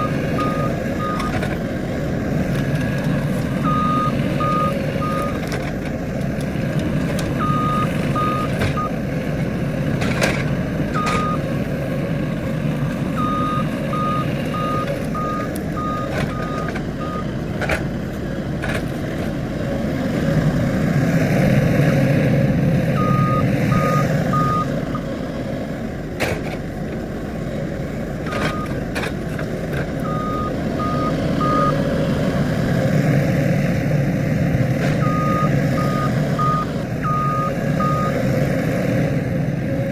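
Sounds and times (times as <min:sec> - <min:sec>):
backup alarm beeps: 0:00.0 - 0:01.4, 0:03.6 - 0:05.4, 0:07.4 - 0:08.9, 0:11.0 - 0:11.4, 0:13.2 - 0:17.3, 0:23.0 - 0:25.0, 0:28.3 - 0:28.8, 0:30.0 - 0:31.8, 0:35.0 - 0:38.2
skid steer engine: 0:00.0 - 0:39.9.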